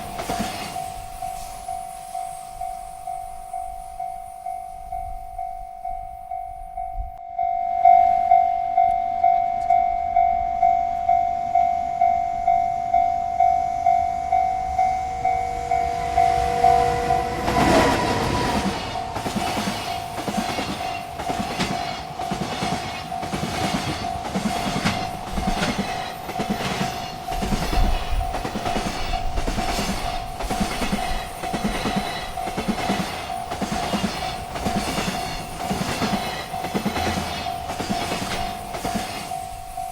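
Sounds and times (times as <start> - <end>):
train wheels clacking over rails: 0.0 - 3.7, 14.4 - 39.9
railroad crossing bell ringing: 0.0 - 39.9.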